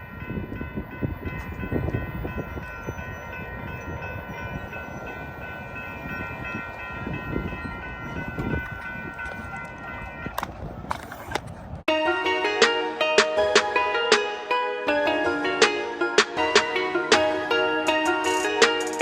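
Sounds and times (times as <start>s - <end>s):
wheels clattering on rails: 0.3s - 11.9s.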